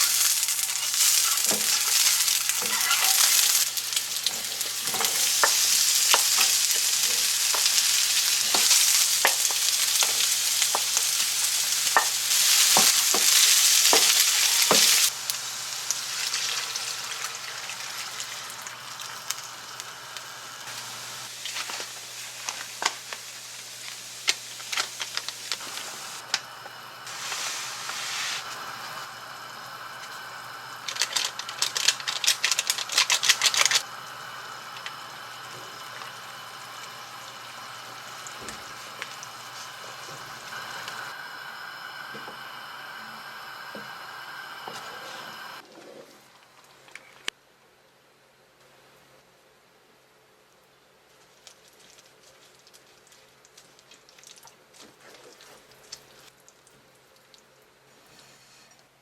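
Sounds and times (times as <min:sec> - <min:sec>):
food sizzling in a hot pan: 0:00.0 - 0:45.6.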